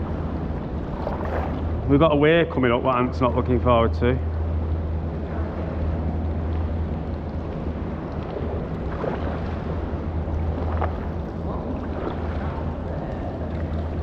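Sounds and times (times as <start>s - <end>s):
paddle splashes: 0.0s - 1.9s, 7.2s - 14.0s
wind rumble on microphone: 0.0s - 14.0s.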